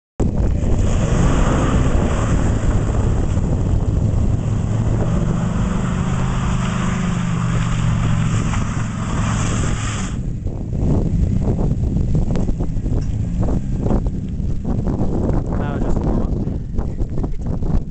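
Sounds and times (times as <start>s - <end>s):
engine at high revs: 0.5s - 10.2s, 12.2s - 16.0s
spinning tyres hissing: 0.5s - 10.3s.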